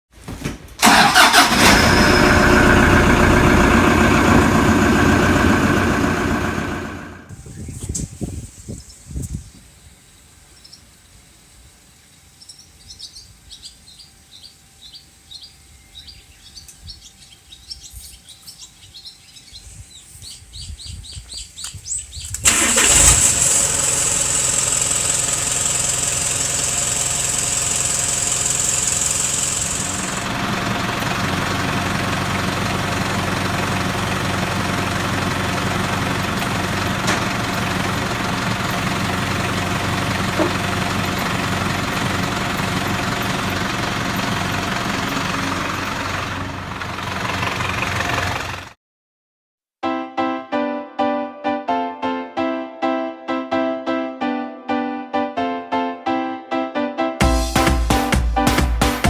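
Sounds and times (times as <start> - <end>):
truck engine starting and idling: 0.8 - 7.4, 22.2 - 48.8
high hiss: 7.3 - 12.7.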